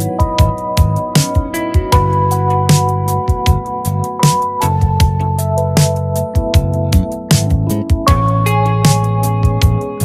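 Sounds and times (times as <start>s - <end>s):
synthesizer chords: 0.0s - 10.0s
kick drum beat: 0.2s - 2.2s, 3.3s - 5.4s, 6.4s - 8.4s, 9.4s - 10.0s.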